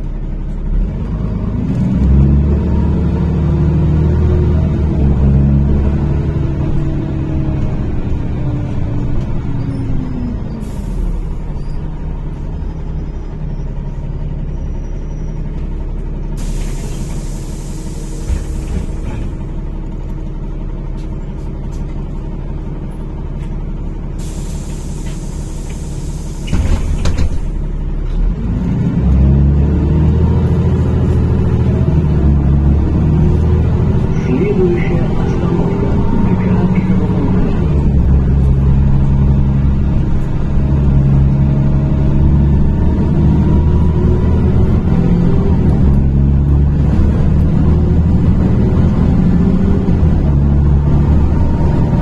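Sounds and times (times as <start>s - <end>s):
bus engine running: 0.0s - 52.0s
air brake hissing: 16.4s - 19.4s, 24.2s - 27.7s.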